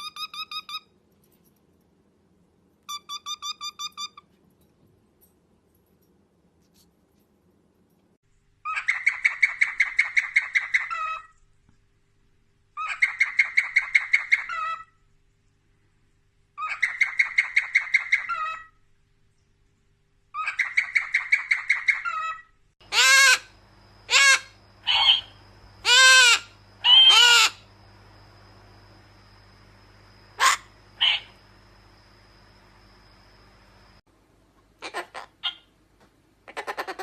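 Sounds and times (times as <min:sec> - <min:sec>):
loud bird calls: 0:20.4 - 0:27.7, 0:30.3 - 0:31.4
bird calling rapid notes: 0:30.4 - 0:31.4.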